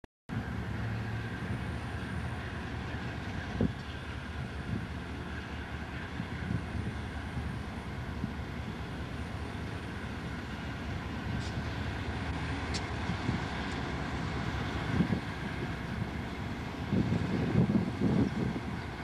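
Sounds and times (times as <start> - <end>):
diesel locomotive engine rumble: 0.3 - 19.0
wheels on rails: 0.3 - 19.0.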